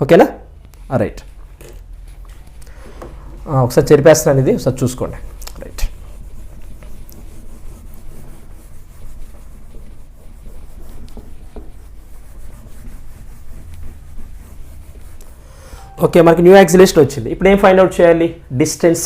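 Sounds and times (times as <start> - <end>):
eraser rubbing across board: 5.0 - 15.9.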